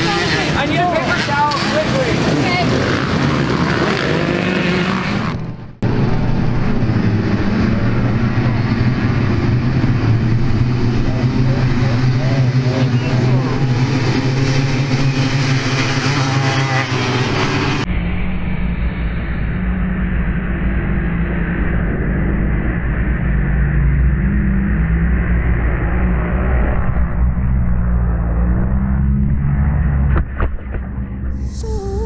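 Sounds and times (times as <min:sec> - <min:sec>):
dirt bike engines revving: 0:00.0 - 0:17.9.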